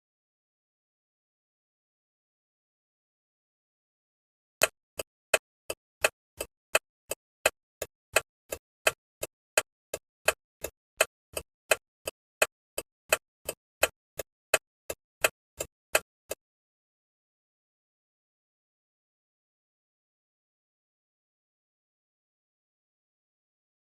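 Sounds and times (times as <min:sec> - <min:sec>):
turn signal relay ticking: 0:04.6 - 0:16.4.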